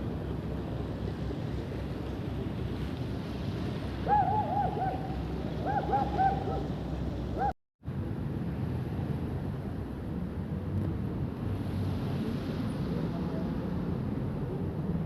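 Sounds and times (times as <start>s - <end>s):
waterfront rumble of sea and boats: 0.0s - 15.0s
bird calling: 4.1s - 6.7s.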